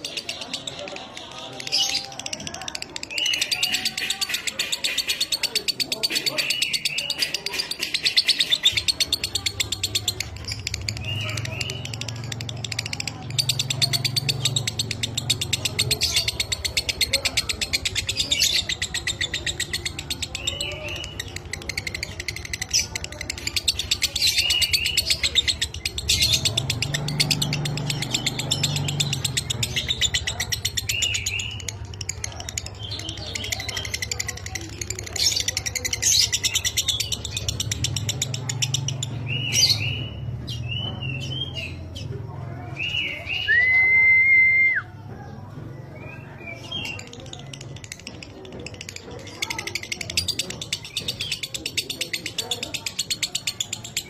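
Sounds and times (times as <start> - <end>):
lovebird chattering trill: 0.0 - 42.1.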